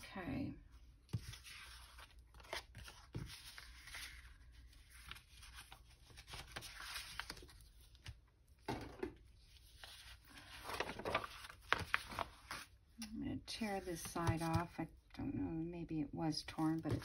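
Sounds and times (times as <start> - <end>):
paper rustling: 1.0 - 8.2, 9.3 - 12.8, 13.6 - 14.8, 16.6 - 17.0.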